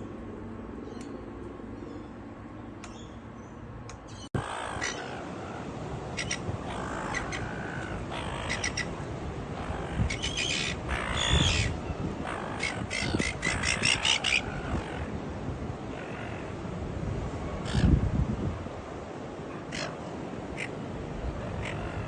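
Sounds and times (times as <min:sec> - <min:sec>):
birds calling with rattling notes: 0:00.8 - 0:15.2.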